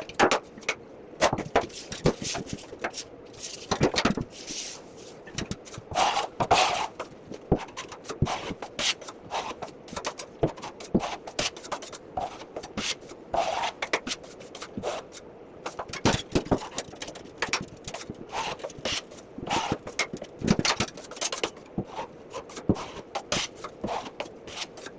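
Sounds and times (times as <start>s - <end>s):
drywall knife scraping compound: 1.2s - 24.9s.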